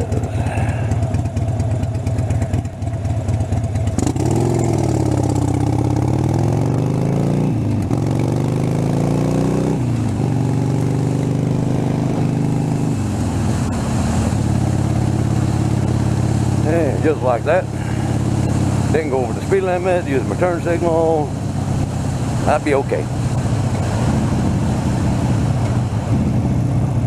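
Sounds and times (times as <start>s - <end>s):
motorcycle engine pulling away: 0.0s - 27.0s
wind rush: 21.2s - 27.0s.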